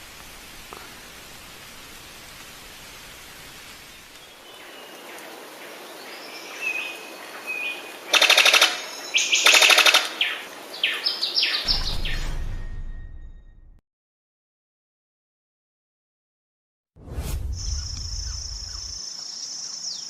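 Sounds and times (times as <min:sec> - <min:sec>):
steady hiss: 0:00.0 - 0:08.2
bird calling: 0:06.0 - 0:11.7, 0:17.7 - 0:20.0.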